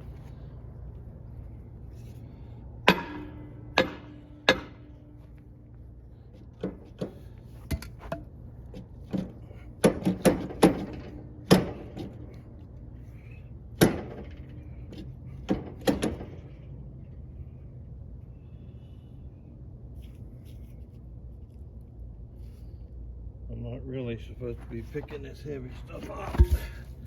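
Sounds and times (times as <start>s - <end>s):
steady low hum: 0.0s - 27.0s
metal knocks and clanks: 26.1s - 26.9s.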